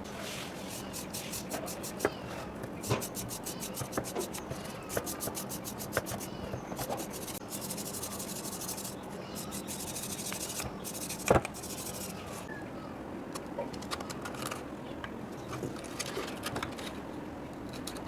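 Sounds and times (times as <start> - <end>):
abrasive scrubbing on metal: 0.2 - 12.5.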